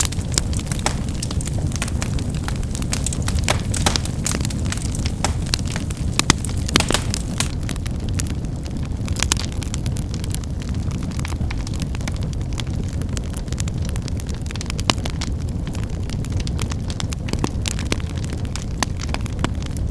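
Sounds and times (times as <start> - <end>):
wood fire rushing: 0.0 - 8.3
firewood crackling and popping: 0.0 - 19.9.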